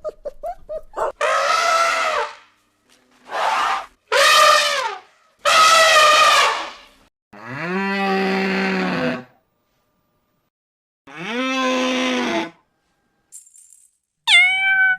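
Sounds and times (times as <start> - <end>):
animal calls: 0.0 - 2.5.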